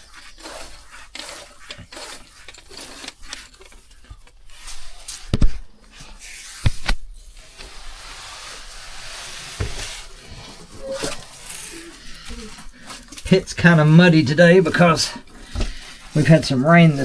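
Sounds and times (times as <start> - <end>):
clothing and gear rustling: 4.5 - 13.3.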